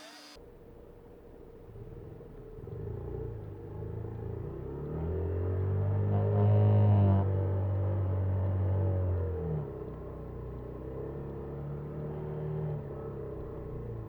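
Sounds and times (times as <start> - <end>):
small motorcycle engine: 0.0 - 0.4.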